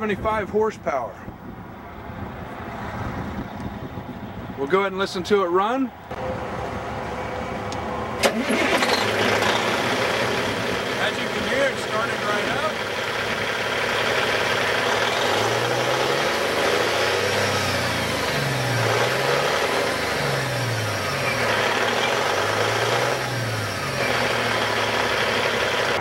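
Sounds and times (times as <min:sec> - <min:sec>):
diesel engine revving: 0:06.1 - 0:26.0.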